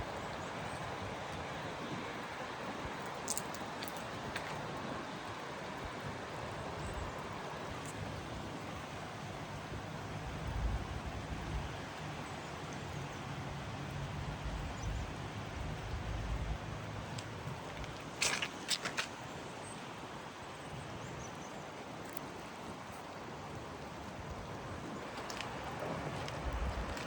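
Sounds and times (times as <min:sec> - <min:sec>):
rain hissing: 0:22.4 - 0:27.0.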